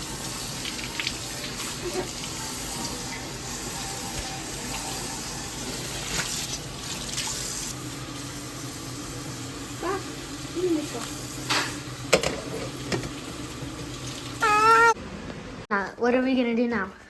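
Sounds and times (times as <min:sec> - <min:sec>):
tap running into sink: 0:11.5 - 0:14.2.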